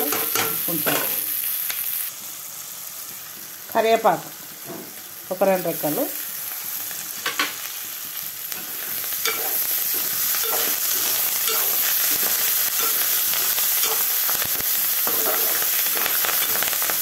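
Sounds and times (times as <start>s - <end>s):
vegetables sizzling in hot oil: 0.0s - 17.0s
metal spatula scraping: 8.6s - 16.7s.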